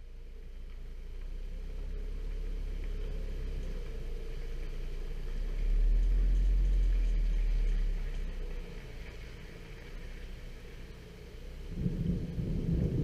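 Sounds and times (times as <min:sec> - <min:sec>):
distant thunder rumble: 0:08.4 - 0:13.0.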